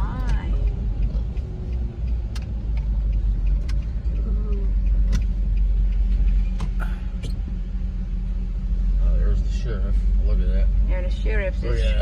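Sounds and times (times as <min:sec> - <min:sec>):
car driving rumble inside cabin: 0:00.0 - 0:12.0
sharp clicks: 0:00.1 - 0:07.4.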